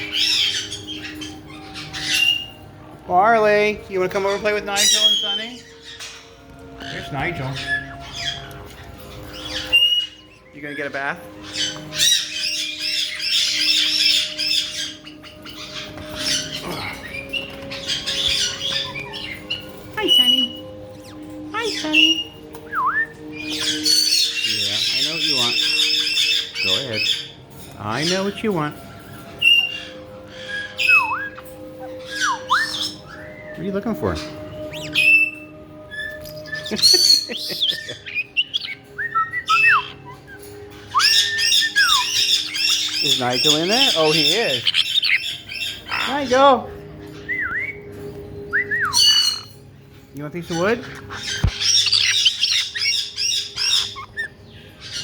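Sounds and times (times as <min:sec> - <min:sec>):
parrots chirping and squawking: 0:00.0 - 0:55.0
parrot whistled note: 0:29.4 - 0:33.6, 0:34.2 - 0:45.8.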